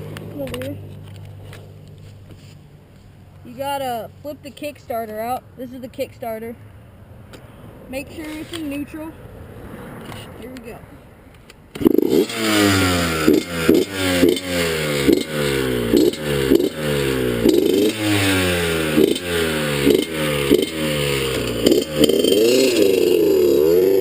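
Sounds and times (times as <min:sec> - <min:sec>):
dirt bike engine revving: 0:11.8 - 0:24.0.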